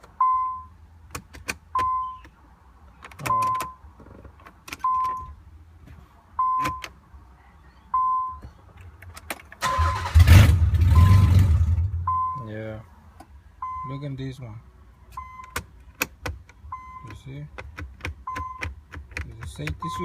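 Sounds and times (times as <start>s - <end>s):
car electronic warning chime: 0.2s - 0.7s, 9.6s - 10.2s, 10.9s - 12.5s, 19.8s - 20.0s
car engine cranking and starting: 9.2s - 12.2s.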